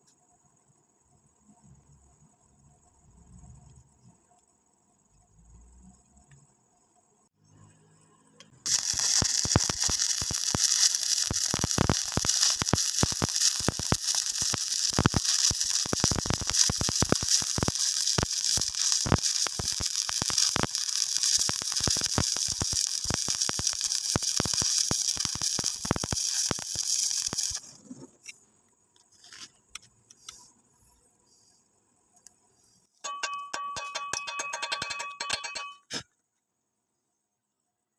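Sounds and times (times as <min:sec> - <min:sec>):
welding arc crackling and hissing: 0:08.6 - 0:27.8.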